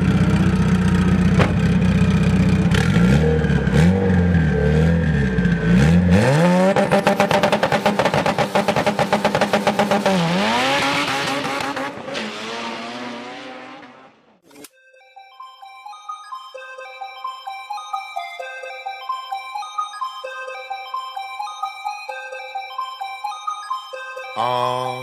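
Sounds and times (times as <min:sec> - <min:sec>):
car engine revving: 0:01.2 - 0:14.4.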